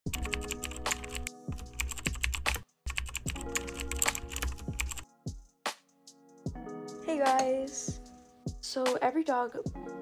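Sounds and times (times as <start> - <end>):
computer keyboard typing: 0.1 - 5.1.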